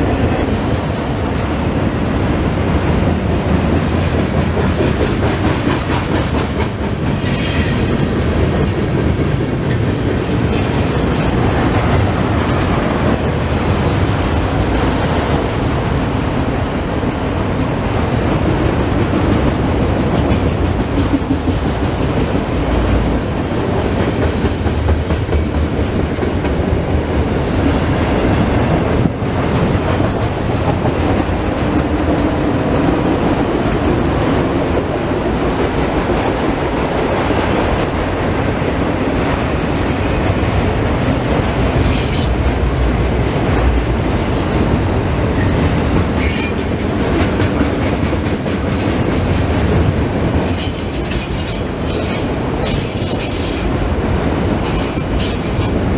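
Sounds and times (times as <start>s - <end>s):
train wheels rumbling on rail: 0.0s - 55.9s
high-pitched wheel squeals: 50.5s - 53.7s.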